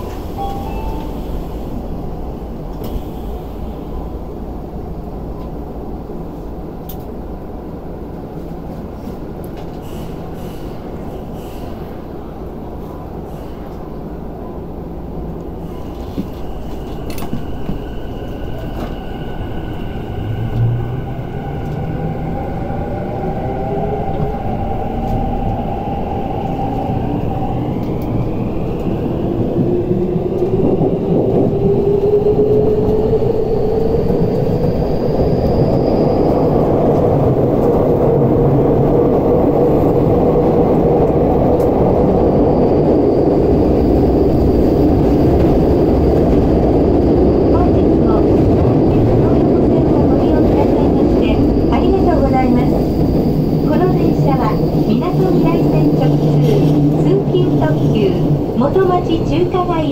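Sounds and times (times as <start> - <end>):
train running rumble: 0.0 - 59.9.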